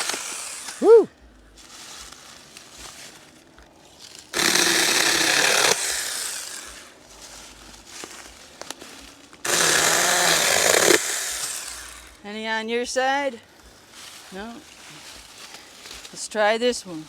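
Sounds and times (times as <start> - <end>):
electric chainsaw running: 0.0 - 0.9, 4.3 - 7.0, 9.4 - 12.2.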